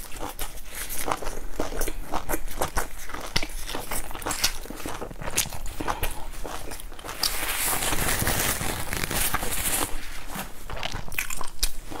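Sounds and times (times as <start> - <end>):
chewing crunchy food: 0.0 - 12.0.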